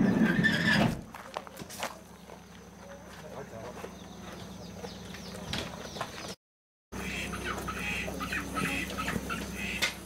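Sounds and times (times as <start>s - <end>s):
background hum: 1.0s - 6.4s
birds chirping: 1.4s - 6.4s, 7.0s - 10.0s.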